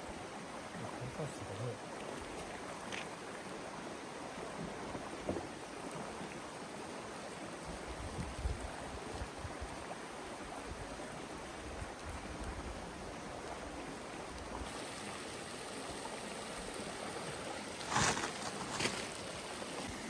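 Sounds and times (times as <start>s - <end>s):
river water rushing: 9.8s - 20.0s
brief rustle: 17.8s - 19.2s.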